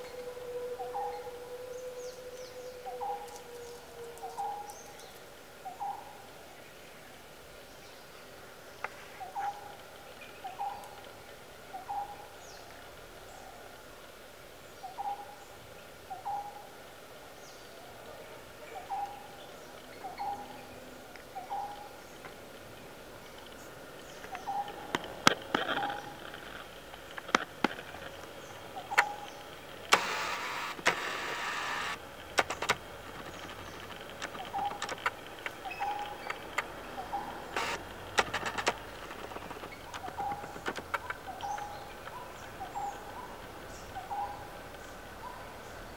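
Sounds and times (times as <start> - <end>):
rustling: 23.3 - 44.9
bird call notes: 28.0 - 45.0
sharp snapping clicks: 28.8 - 42.8.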